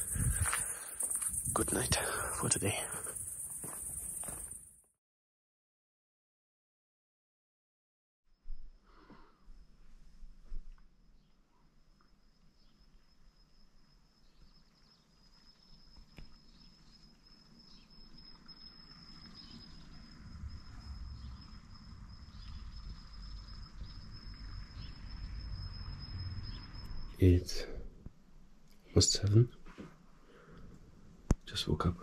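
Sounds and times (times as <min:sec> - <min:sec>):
crickets trilling: 0:00.0 - 0:04.8, 0:11.1 - 0:28.2.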